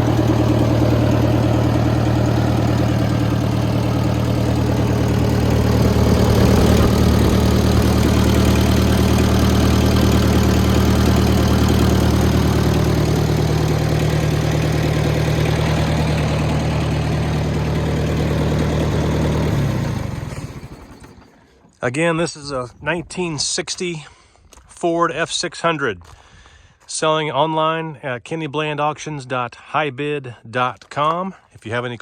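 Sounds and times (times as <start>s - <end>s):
tractor engine idling: 0.0s - 22.3s.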